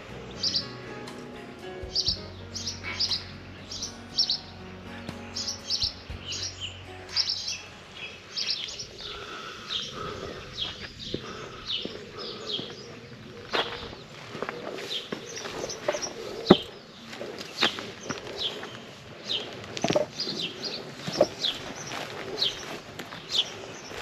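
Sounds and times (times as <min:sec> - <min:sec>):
soft background music: 0:00.0 - 0:09.3
songbirds chirping and singing: 0:00.0 - 0:24.0.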